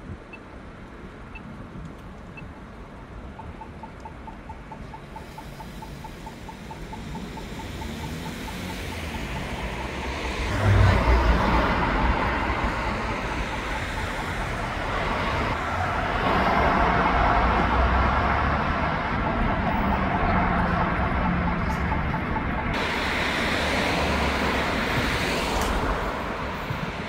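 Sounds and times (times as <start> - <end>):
city road traffic: 0.0 - 27.0
faint rapid ticking: 3.3 - 9.9
vehicle passing close: 5.4 - 27.0.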